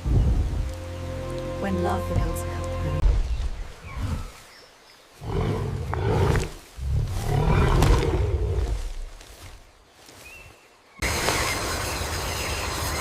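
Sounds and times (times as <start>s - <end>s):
large animal roaring: 5.2s - 8.8s.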